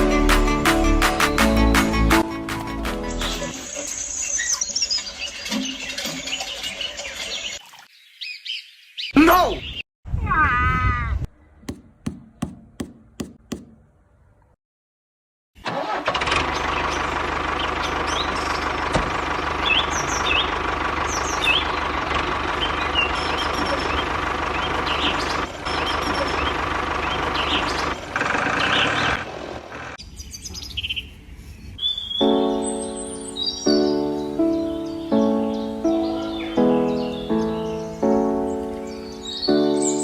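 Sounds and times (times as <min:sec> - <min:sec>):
birds chirping: 0:01.2 - 0:09.8, 0:19.3 - 0:29.2, 0:30.0 - 0:40.0.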